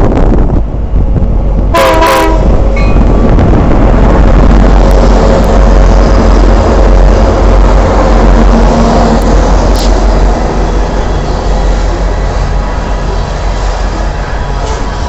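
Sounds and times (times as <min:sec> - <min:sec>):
diesel locomotive engine rumble: 0:00.0 - 0:15.0
freight cars rolling on rails: 0:00.0 - 0:15.0
train horn blast: 0:01.7 - 0:02.6.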